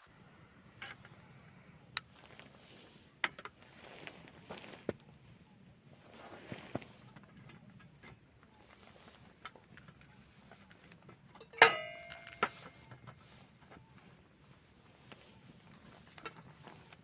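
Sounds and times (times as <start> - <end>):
small objects clicking and tapping: 9.4 - 13.8
sharp metallic clink: 11.3 - 13.0.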